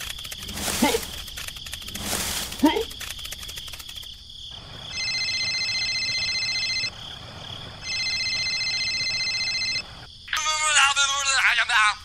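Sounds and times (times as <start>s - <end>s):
telephone ringing: 4.9s - 7.0s, 7.8s - 10.1s.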